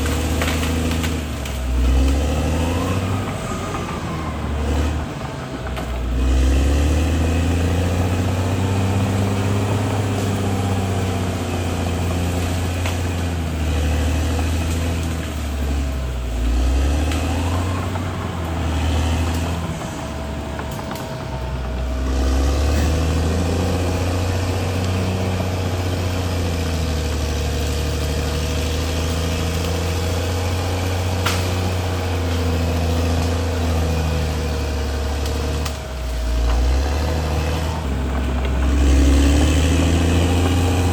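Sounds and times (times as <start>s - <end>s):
bulldozer diesel engine under load: 0.0s - 40.9s
steady high whine: 17.4s - 26.1s.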